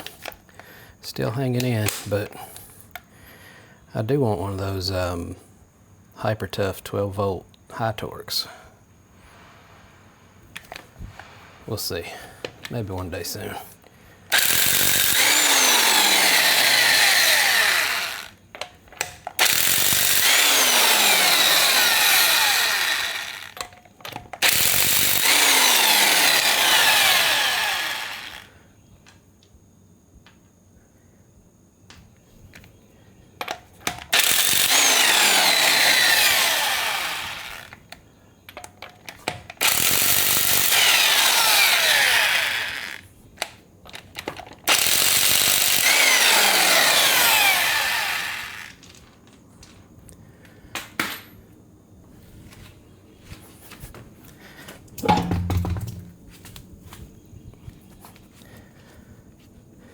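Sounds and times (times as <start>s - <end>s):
impact wrench hammering: 55.0s - 56.3s.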